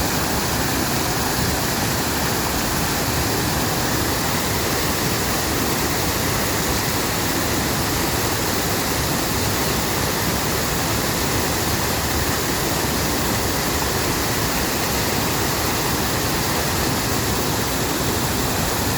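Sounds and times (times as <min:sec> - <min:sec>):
stream water rushing: 0:00.0 - 0:18.9.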